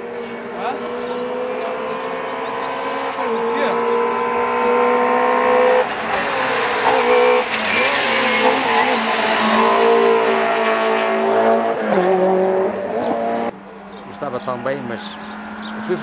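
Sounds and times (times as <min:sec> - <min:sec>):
rally car engine at high revs: 0:00.0 - 0:13.6.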